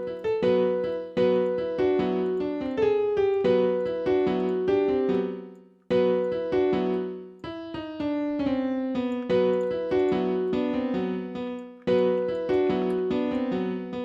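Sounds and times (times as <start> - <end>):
piano chords for trap beat: 0.0 - 14.0.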